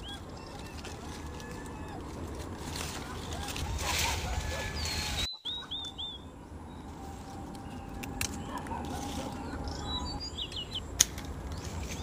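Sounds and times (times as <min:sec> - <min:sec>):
small bird chirping: 0:04.7 - 0:10.9.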